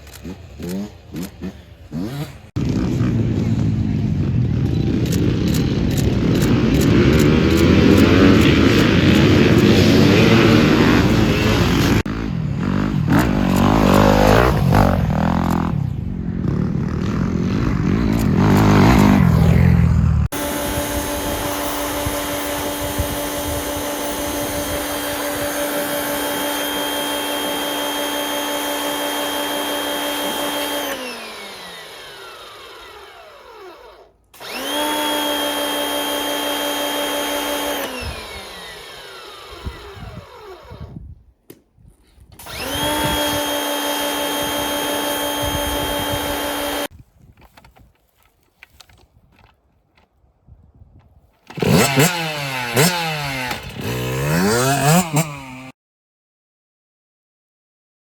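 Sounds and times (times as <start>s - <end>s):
electric motor whining: 20.4s - 41.0s, 42.4s - 46.9s, 51.5s - 55.7s.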